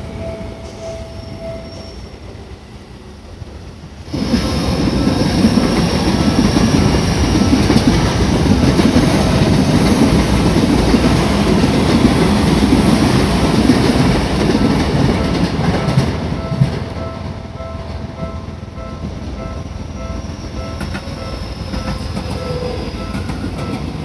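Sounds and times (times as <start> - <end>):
level crossing warning bell: 0.0 - 2.0, 8.4 - 12.5, 14.5 - 24.0
train wheels clattering on rails: 4.1 - 24.0.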